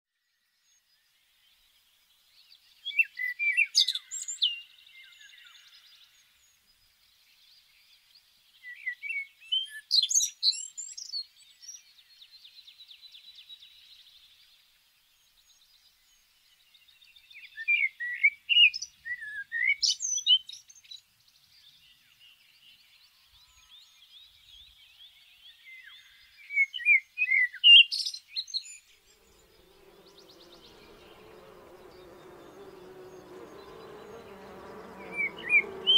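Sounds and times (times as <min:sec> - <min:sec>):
songbird chirping and whistling: 0:26.6 - 0:35.9
buzzy trill: 0:29.1 - 0:35.9.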